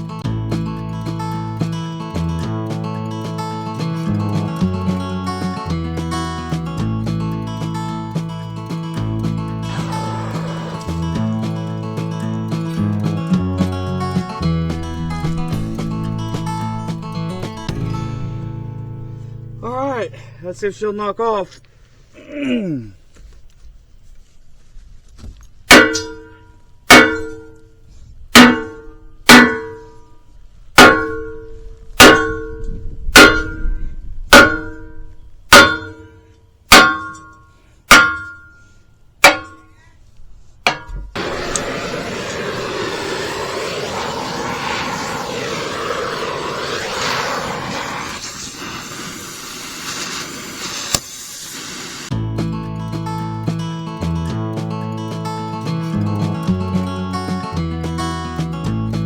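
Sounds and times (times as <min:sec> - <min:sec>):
background music: 0:00.0 - 0:19.9, 0:52.1 - 0:59.0.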